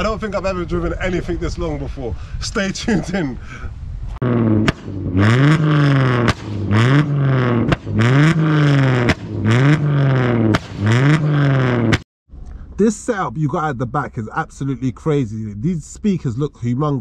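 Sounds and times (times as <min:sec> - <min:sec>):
car engine revving: 0:04.2 - 0:12.1
exhaust pops: 0:04.2 - 0:13.4.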